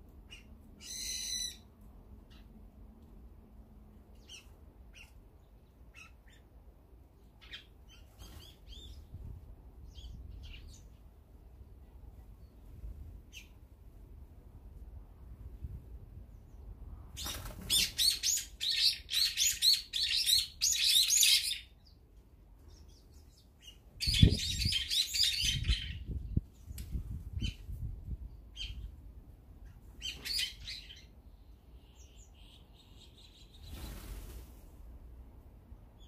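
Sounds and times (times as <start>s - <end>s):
songbirds chirping: 16.2s - 27.6s, 29.6s - 34.2s.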